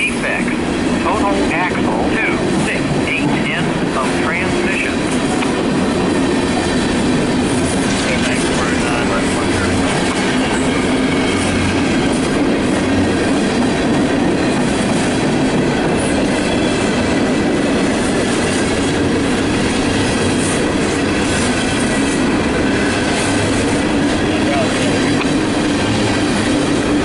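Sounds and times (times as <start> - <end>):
steel wheels clattering on rail: 0.1 - 27.0.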